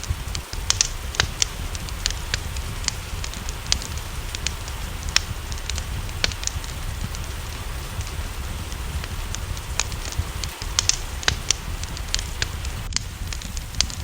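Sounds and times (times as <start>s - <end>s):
low rumble: 0.0s - 14.0s
rain hiss: 0.0s - 14.0s
wood fire crackling: 0.0s - 14.0s.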